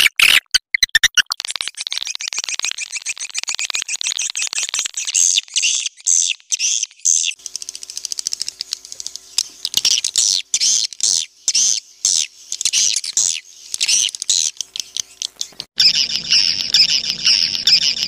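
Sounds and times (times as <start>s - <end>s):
bird buzzy clicks: 1.1s - 18.0s
bird high chirps: 1.6s - 18.0s.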